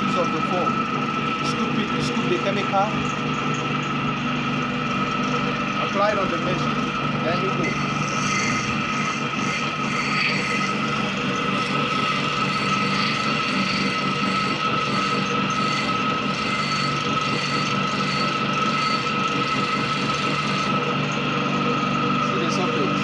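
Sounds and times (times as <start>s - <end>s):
blade grinding on rotating plate: 0.0s - 23.0s
sharpening machine whirring: 0.0s - 23.0s.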